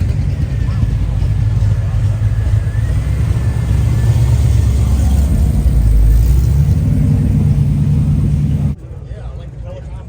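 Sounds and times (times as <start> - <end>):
car engine rumbling: 0.0 - 10.0.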